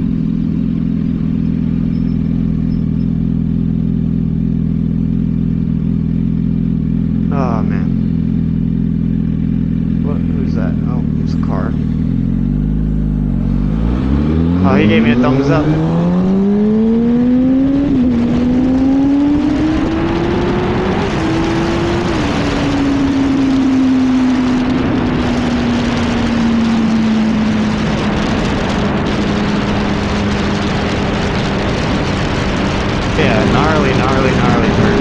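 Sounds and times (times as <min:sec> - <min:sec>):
motorcycle engine accelerating: 0:00.0 - 0:35.0
wind rush: 0:13.7 - 0:35.0.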